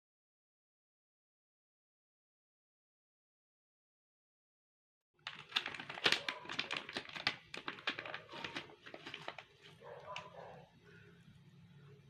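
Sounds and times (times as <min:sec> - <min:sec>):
sharp clicks and crackles: 0:05.2 - 0:10.3.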